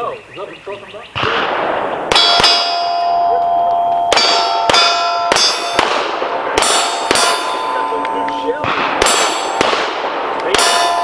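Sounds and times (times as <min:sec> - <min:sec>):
pistol shots: 0:01.2 - 0:11.0
steel plate ringing: 0:02.1 - 0:09.8, 0:10.5 - 0:11.0.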